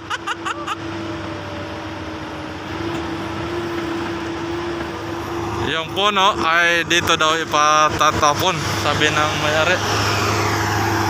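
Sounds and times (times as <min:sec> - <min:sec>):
constant whine: 0:00.0 - 0:11.0
diesel engine running: 0:00.0 - 0:11.0.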